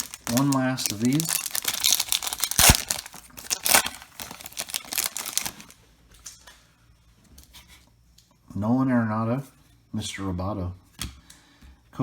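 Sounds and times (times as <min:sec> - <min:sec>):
wrapper crinkling and tearing: 0:00.0 - 0:05.8.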